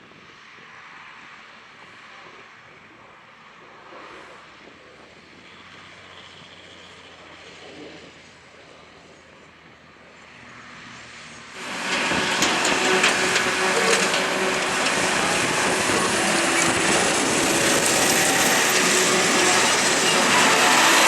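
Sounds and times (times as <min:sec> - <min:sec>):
heavy farm machinery running: 0:11.6 - 0:21.0
machinery rattles and clatter: 0:11.6 - 0:21.0.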